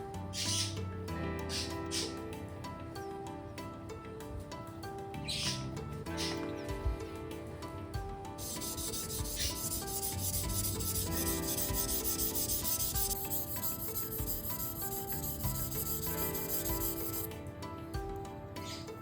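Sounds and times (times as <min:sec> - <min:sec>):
blade scraping on whetstone: 0:08.4 - 0:17.3.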